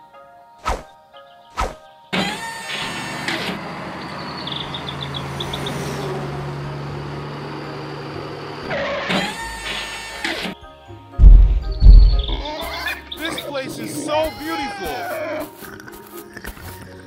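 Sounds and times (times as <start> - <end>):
truck engine revving and humming: 2.2 - 10.6.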